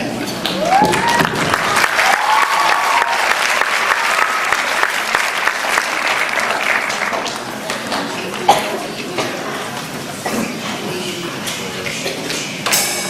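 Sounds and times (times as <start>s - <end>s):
voices in crowd: 0.0s - 13.0s
audience applauding: 0.4s - 8.5s.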